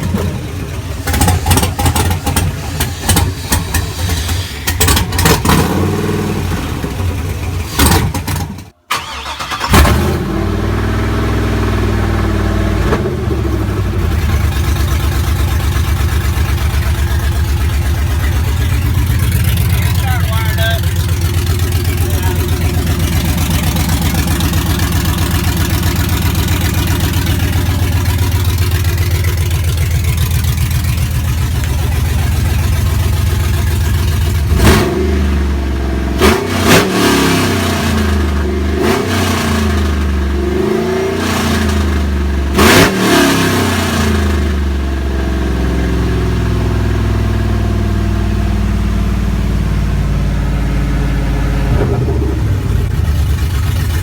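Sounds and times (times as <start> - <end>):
engine idling and revving: 0.0 - 54.0.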